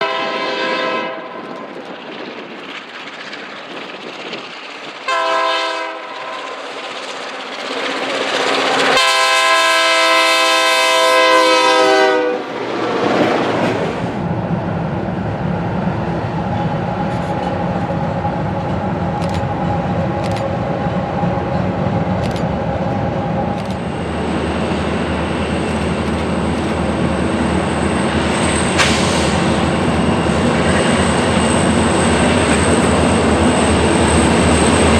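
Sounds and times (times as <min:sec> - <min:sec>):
locomotive air horn blasts: 0:00.0 - 0:01.4, 0:05.1 - 0:06.5, 0:09.0 - 0:12.4
train engine and wheel rumble: 0:00.0 - 0:34.9.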